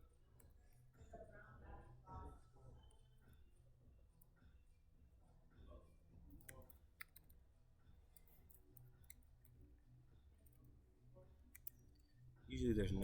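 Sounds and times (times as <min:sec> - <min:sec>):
computer mouse and keyboard clicks: 0:06.3 - 0:07.4, 0:08.1 - 0:09.6, 0:11.3 - 0:12.3.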